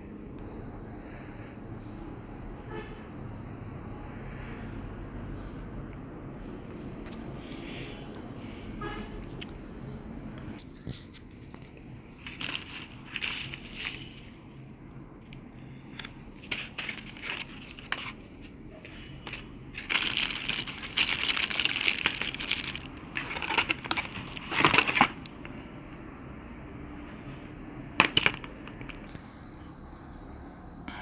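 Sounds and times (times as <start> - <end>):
packaging crinkling: 12.2 - 14.2, 16.1 - 18.3, 19.0 - 25.4.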